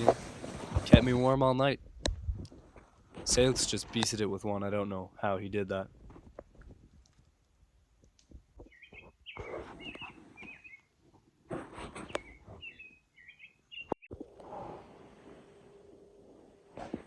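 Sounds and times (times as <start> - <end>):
rustling noise: 0.0 - 4.2, 8.2 - 12.8, 14.1 - 17.0
small bird chirping: 8.6 - 10.9, 12.0 - 14.1.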